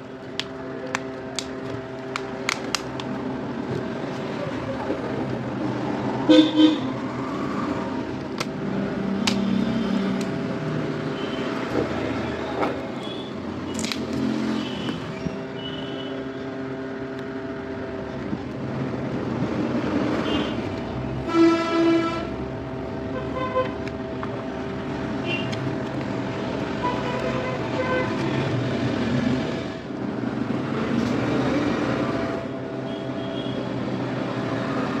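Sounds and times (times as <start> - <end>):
street traffic: 0.0 - 35.0
vehicle horns honking: 6.3 - 6.9, 14.6 - 16.3, 20.2 - 20.6, 21.2 - 22.3, 26.8 - 28.2, 32.8 - 33.7.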